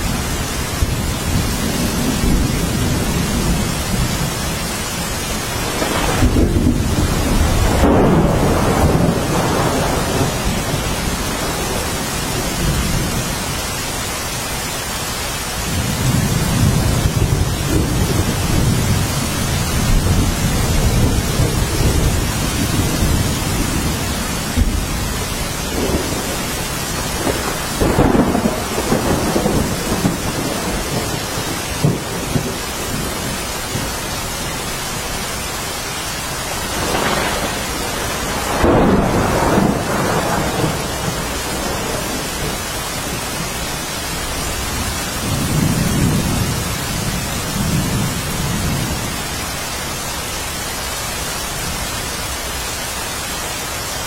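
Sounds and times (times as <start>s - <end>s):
steady rain falling: 0.0s - 54.0s
low rolls of thunder: 5.5s - 13.4s, 15.6s - 34.2s, 36.6s - 49.0s.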